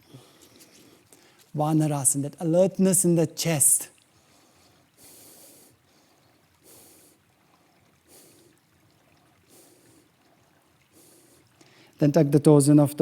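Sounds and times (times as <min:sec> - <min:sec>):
soft breathing: 0:00.0 - 0:01.5, 0:04.0 - 0:12.0.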